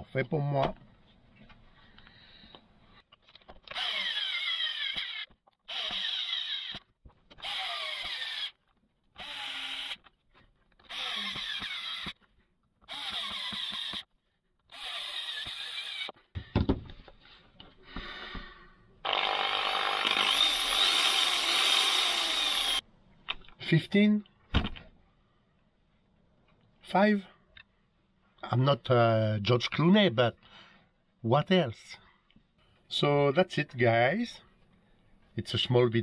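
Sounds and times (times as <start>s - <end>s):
electric drill motor bursts: 3.7s - 6.8s, 7.4s - 8.6s, 9.2s - 10.0s, 10.9s - 12.2s, 12.9s - 14.1s, 14.7s - 16.2s, 19.0s - 22.8s.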